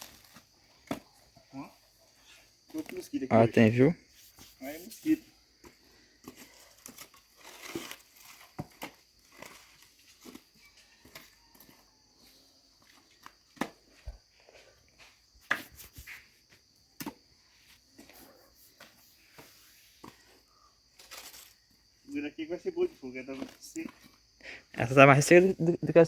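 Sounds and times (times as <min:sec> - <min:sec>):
rustling: 0:17.6 - 0:21.7.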